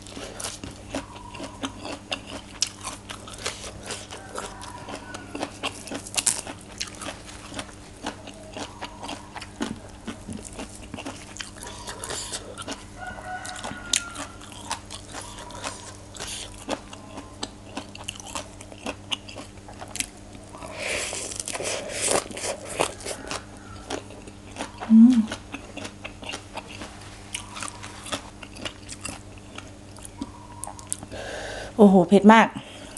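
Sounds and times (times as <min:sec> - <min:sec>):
wet crunchy chewing: 0:00.0 - 0:31.1.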